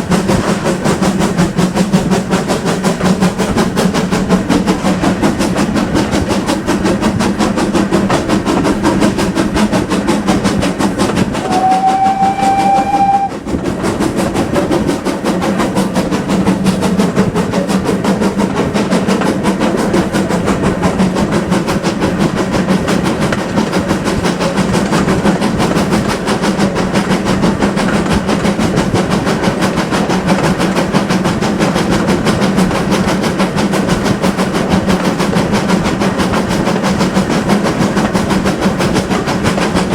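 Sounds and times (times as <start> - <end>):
steam locomotive working: 0.0 - 39.9
steam whistle blast: 11.4 - 13.4.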